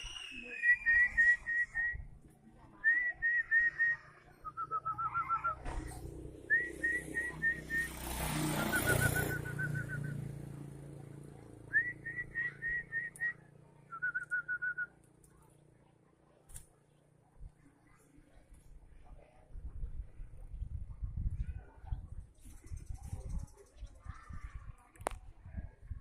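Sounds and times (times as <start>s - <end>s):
bird singing whistled notes: 0.0s - 2.2s, 2.8s - 5.6s, 6.5s - 8.0s, 8.6s - 10.4s, 11.7s - 15.1s.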